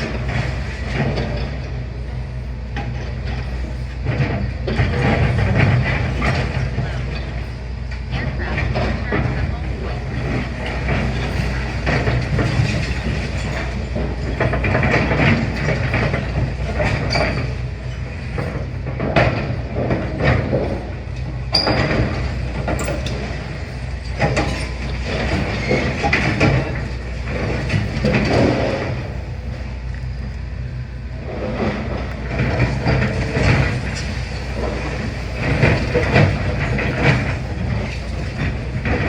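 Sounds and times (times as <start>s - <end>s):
excavator diesel engine running: 0.0s - 39.0s
rubble knocks cracks and clanks: 8.1s - 20.9s, 21.5s - 29.2s, 31.3s - 39.0s.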